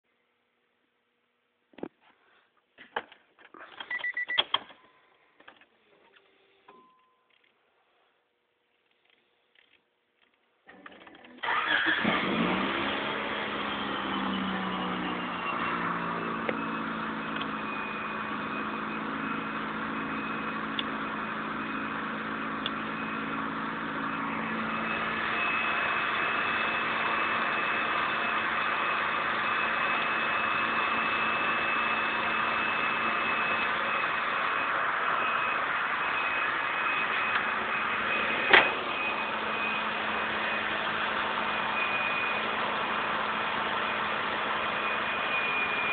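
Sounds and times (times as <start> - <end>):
car engine idling: 11.4 - 45.9.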